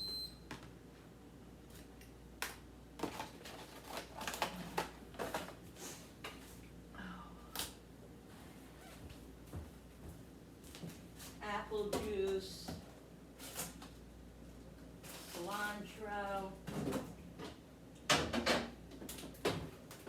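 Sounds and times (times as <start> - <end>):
food packaging clicks and crinkles: 1.7 - 5.6.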